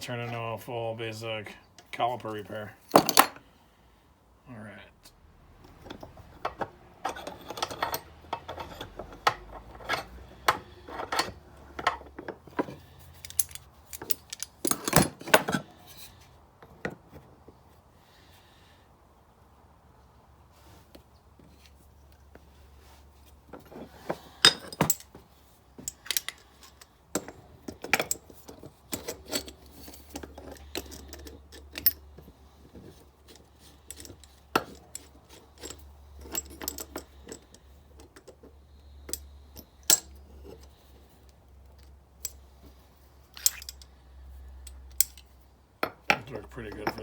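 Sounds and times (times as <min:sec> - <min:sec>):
metal tools clinking: 0:05.7 - 0:16.1, 0:23.5 - 0:25.2, 0:25.8 - 0:40.8, 0:43.2 - 0:43.9, 0:44.6 - 0:47.0.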